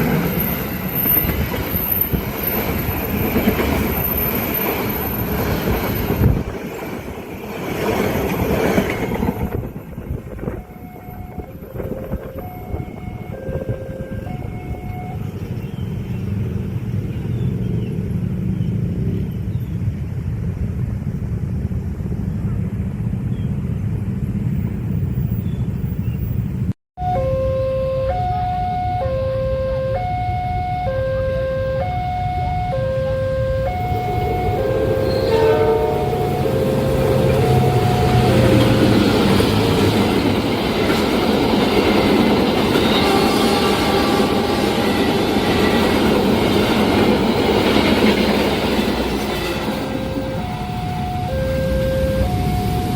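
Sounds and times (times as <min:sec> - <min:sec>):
train passing at speed: 0:00.0 - 0:52.9
high two-note tone: 0:10.6 - 0:15.3, 0:27.0 - 0:39.0, 0:49.8 - 0:52.9.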